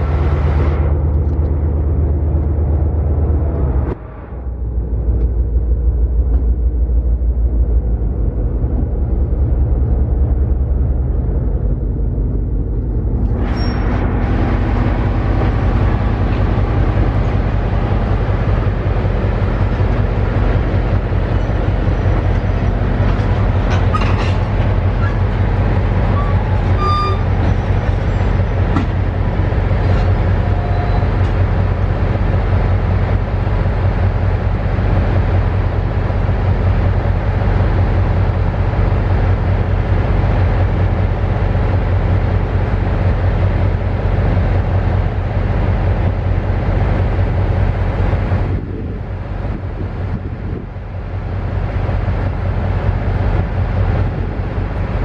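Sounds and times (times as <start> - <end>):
train rumbling: 0.0 - 55.0
high squeals: 26.1 - 28.6.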